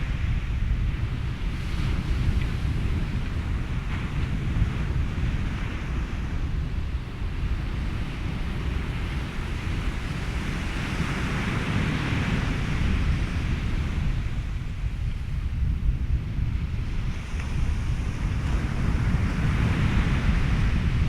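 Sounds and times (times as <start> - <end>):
ocean surf: 0.0 - 21.0
wind: 0.0 - 21.0
wave washing through: 16.4 - 21.0.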